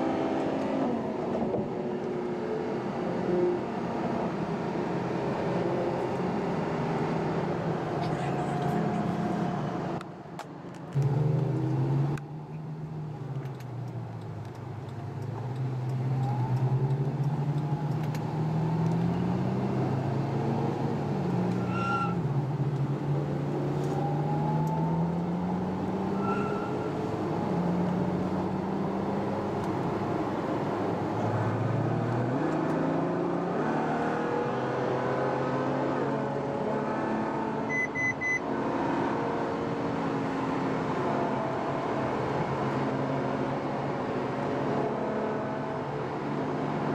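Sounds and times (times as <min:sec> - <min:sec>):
car engine shifting gears: 0:00.0 - 0:46.9
short electronic beeps: 0:37.7 - 0:38.4.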